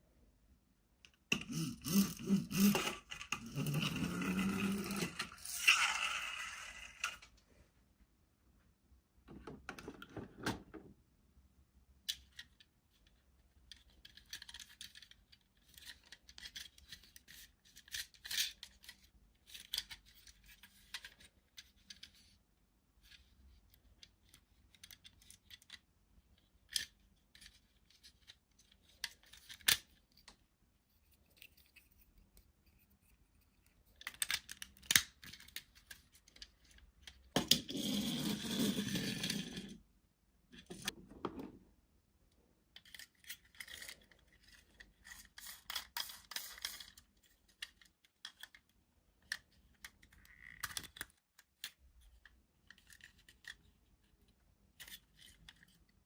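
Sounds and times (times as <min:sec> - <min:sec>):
plastic toy parts clicking: 0:01.0 - 0:07.3, 0:12.0 - 0:22.3, 0:23.0 - 0:25.9, 0:26.6 - 0:30.4, 0:33.6 - 0:37.5, 0:42.7 - 0:53.7.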